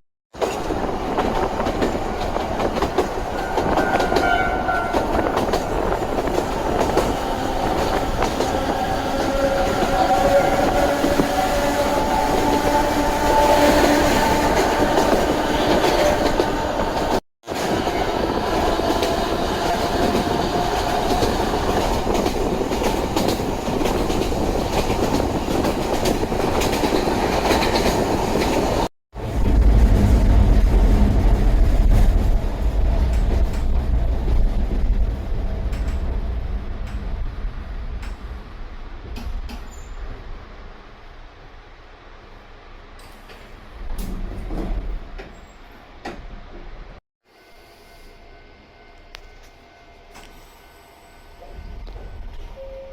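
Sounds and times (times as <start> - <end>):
deep train rumble: 0.4 - 47.0, 48.2 - 52.9
wheels clattering on rails: 14.1 - 40.0.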